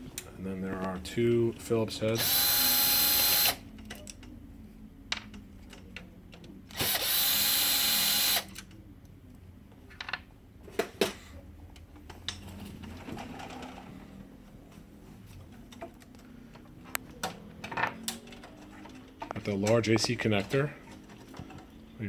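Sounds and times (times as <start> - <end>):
electric screwdriver running: 2.2 - 3.6, 6.7 - 8.5.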